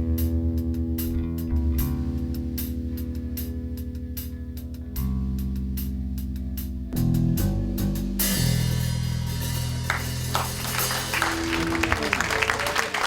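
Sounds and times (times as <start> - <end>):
guitar and bass chords: 0.0 - 13.0
audience clapping: 9.8 - 13.0.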